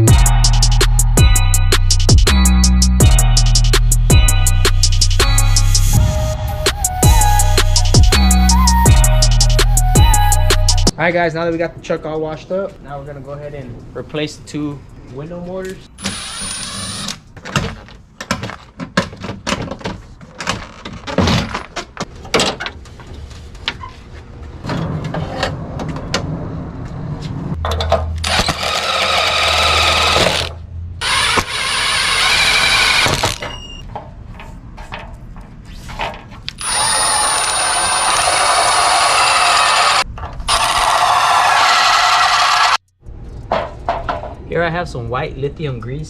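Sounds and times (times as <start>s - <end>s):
power tool whining: 16.0s - 17.2s, 28.2s - 33.8s, 36.6s - 42.8s.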